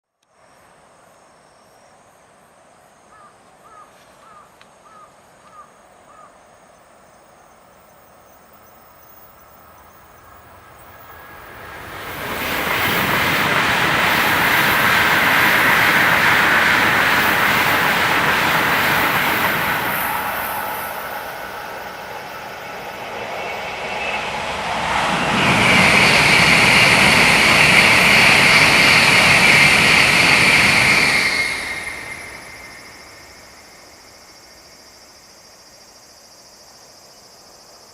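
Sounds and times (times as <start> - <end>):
high-speed train passing: 6.7 - 35.8.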